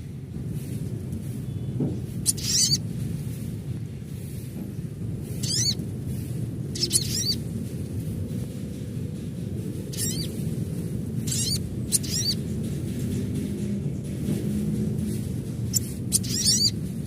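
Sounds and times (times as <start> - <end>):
low background rumble: 0.0 - 17.0
sunbird chirping: 1.5 - 2.8, 5.2 - 7.4, 9.9 - 10.5, 11.2 - 12.5, 15.1 - 16.9.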